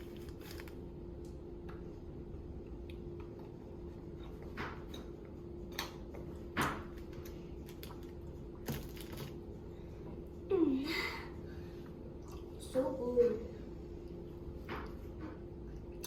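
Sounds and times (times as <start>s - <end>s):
food packaging clicks and rustles: 0.0s - 0.8s, 7.2s - 9.4s.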